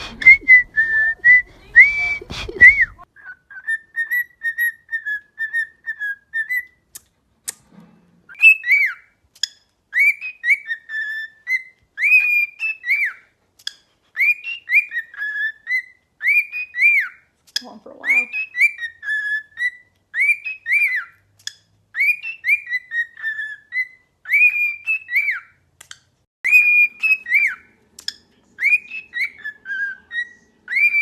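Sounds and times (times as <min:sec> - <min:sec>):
cockatiel whistling: 0:00.0 - 0:06.8, 0:08.3 - 0:09.1, 0:09.9 - 0:13.3, 0:14.2 - 0:17.2, 0:18.0 - 0:21.2, 0:21.9 - 0:25.6, 0:26.5 - 0:27.8, 0:28.6 - 0:31.0.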